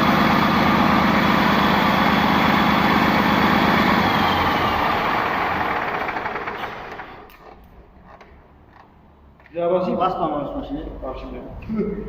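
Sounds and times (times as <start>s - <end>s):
bulldozer diesel engine running: 0.0s - 7.2s.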